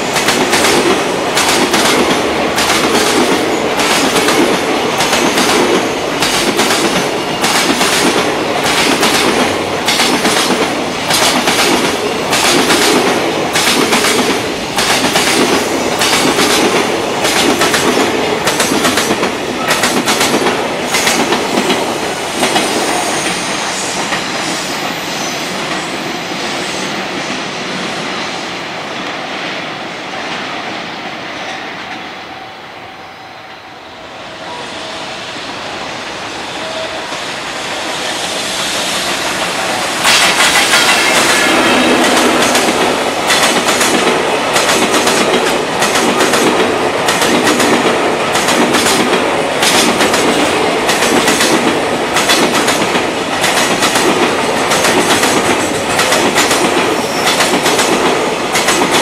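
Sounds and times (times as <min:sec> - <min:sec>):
train wheels clacking over rail joints: 0:00.0 - 0:25.0, 0:38.6 - 0:59.0
freight train passing: 0:00.0 - 0:59.0.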